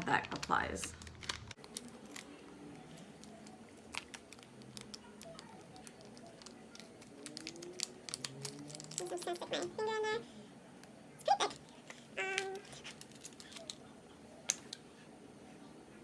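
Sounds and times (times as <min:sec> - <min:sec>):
packet crinkling: 0:00.0 - 0:10.0, 0:11.4 - 0:13.9.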